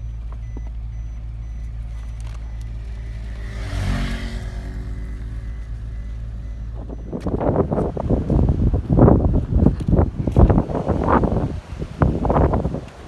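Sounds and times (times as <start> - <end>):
vehicle engine and tyres rumble: 0.0 - 13.0
vehicle passing: 2.5 - 12.9.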